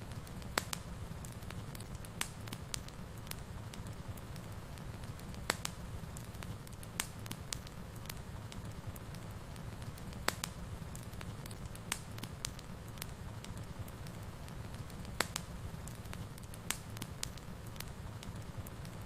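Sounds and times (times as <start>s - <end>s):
fire crackles and pops: 0.0s - 19.0s
fire low rumble: 0.0s - 19.0s.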